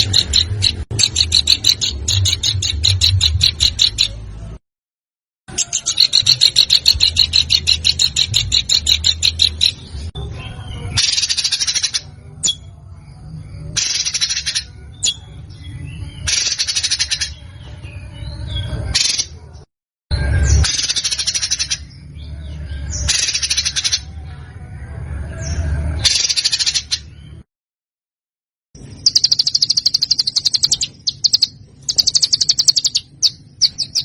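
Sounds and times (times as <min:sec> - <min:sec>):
songbird trilling song: 0:00.0 - 0:04.2, 0:05.5 - 0:19.6, 0:25.4 - 0:27.4, 0:28.8 - 0:34.0.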